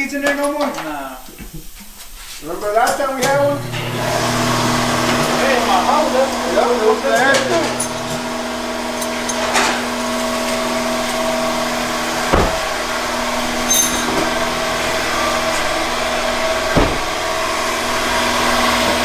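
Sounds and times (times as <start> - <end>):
car engine idling: 3.7 - 19.0
short knocks: 12.2 - 12.9, 14.0 - 17.3.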